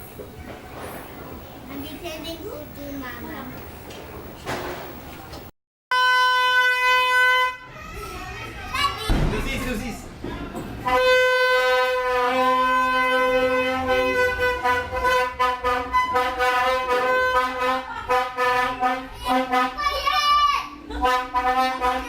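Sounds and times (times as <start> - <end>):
horn long steady note: 5.9 - 7.8, 10.8 - 19.9, 21.0 - 22.0
lower horn tone: 10.8 - 19.6.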